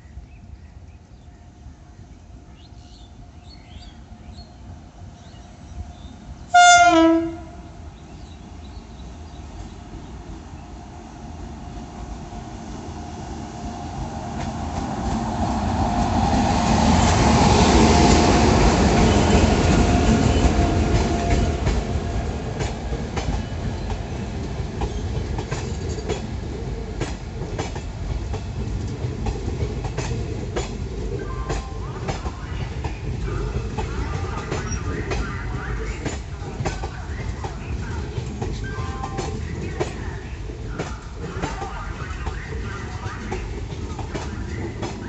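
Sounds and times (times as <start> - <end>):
electric locomotive passing: 0.0 - 45.0
wheels clicking over rail joints: 24.7 - 45.0.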